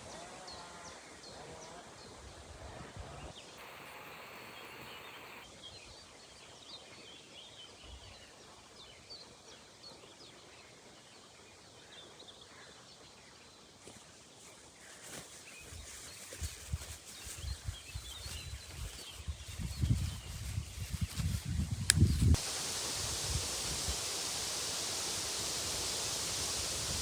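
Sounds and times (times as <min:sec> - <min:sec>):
songbird chirps: 0:03.1 - 0:27.0
brief hiss: 0:03.5 - 0:05.4, 0:21.0 - 0:27.0.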